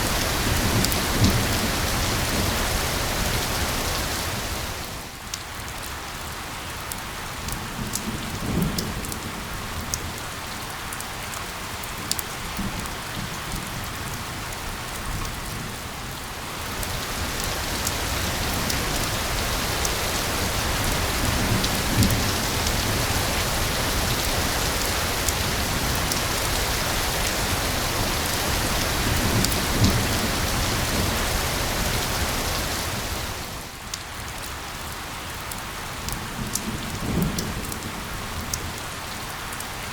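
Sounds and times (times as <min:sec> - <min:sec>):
heavy rain pattering: 0:00.0 - 0:39.9
low thunder rumbles: 0:16.6 - 0:33.6.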